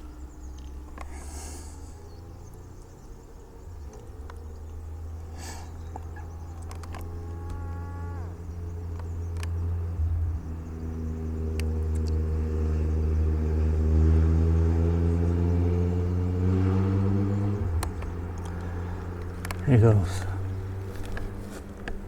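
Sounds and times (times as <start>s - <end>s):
drone motor and propeller droning: 0.0s - 22.0s.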